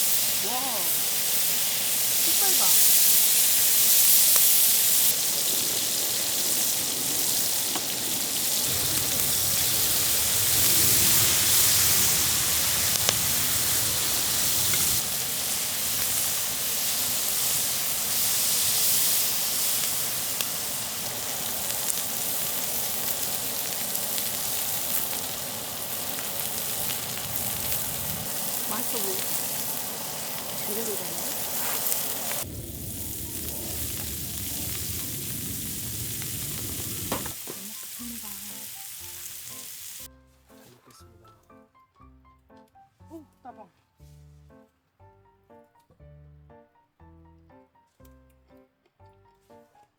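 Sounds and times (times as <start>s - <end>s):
food sizzling in a pan: 0.0s - 40.1s.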